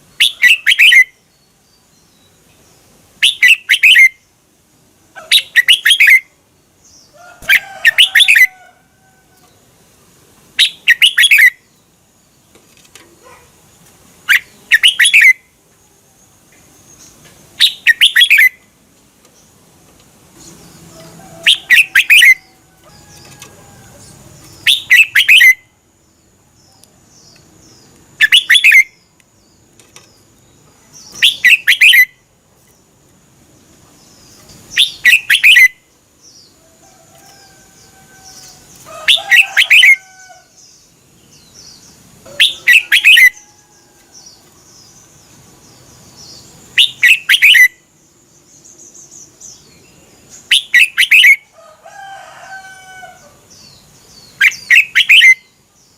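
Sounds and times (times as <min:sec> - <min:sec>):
bulbul singing warbled phrase: 0:21.4 - 0:22.6, 0:42.2 - 0:43.4.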